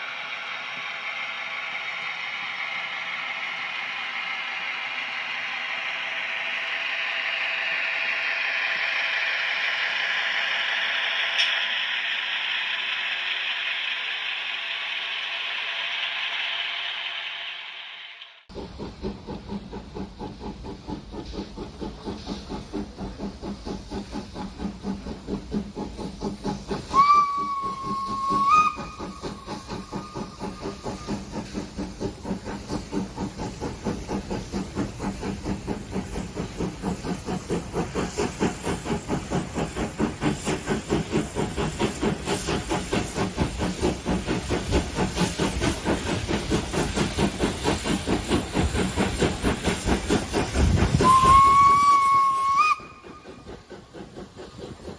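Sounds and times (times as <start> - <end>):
steam locomotive chuffing: 0.0 - 54.9
steam locomotive whistle: 26.9 - 30.7, 50.9 - 53.4.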